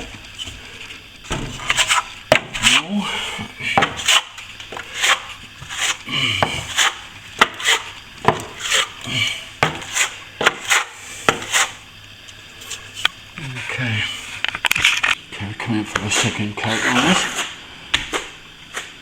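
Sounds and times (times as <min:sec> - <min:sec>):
float scraping plaster: 0:00.0 - 0:11.9, 0:16.0 - 0:17.6
sharp taps and knocks: 0:03.8 - 0:08.9, 0:09.6 - 0:11.7.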